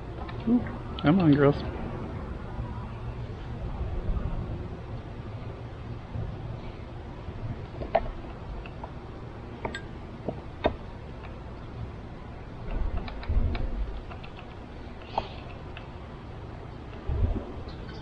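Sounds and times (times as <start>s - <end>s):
low rumble: 17.0s - 17.8s.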